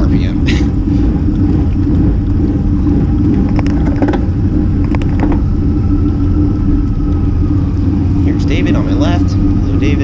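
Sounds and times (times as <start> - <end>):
road rumble: 0.0 - 10.0
wind noise: 0.0 - 10.0.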